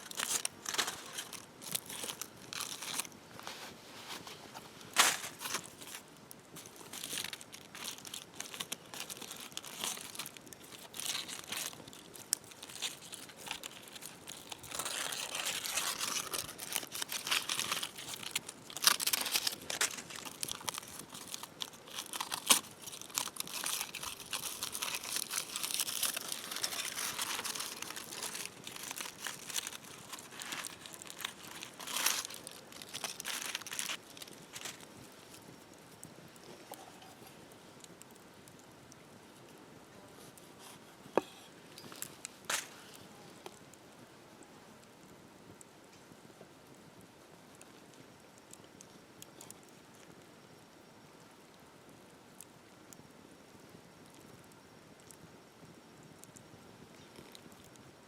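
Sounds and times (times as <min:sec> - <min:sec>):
crinkling and crunching: 0:00.0 - 0:39.6, 0:40.2 - 0:43.8, 0:47.5 - 0:50.2, 0:54.1 - 0:55.3, 0:56.2 - 0:57.9.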